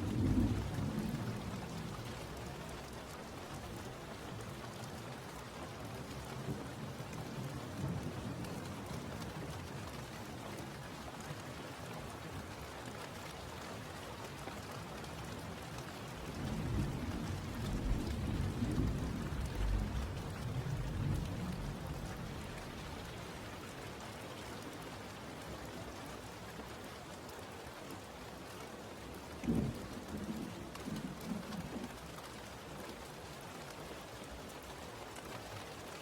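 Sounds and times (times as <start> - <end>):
rain falling: 0.0 - 36.0
thunder rumbling: 16.5 - 23.1.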